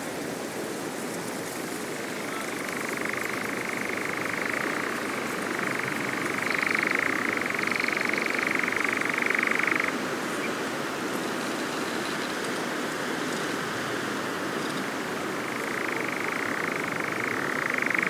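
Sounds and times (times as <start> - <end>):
steady background hiss: 0.0 - 18.0
nightjar churring trill: 2.3 - 10.0, 15.4 - 18.0.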